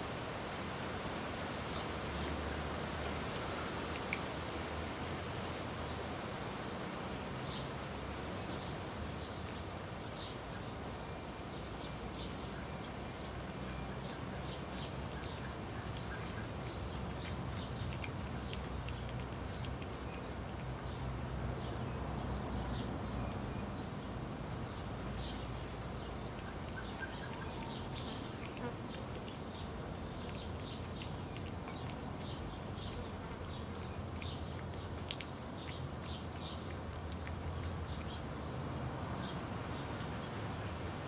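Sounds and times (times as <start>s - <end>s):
kittens chewing: 3.1s - 4.6s, 11.2s - 23.6s, 24.4s - 41.0s.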